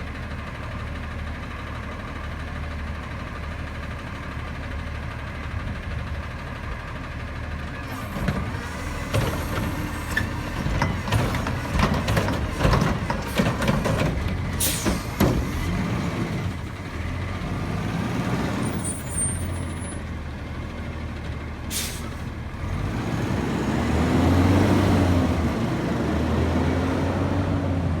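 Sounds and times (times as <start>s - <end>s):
truck diesel engine running: 0.0s - 28.0s
clanks and knocks from truck body: 8.1s - 16.4s
air brake hisses: 14.6s - 15.2s, 21.7s - 22.3s.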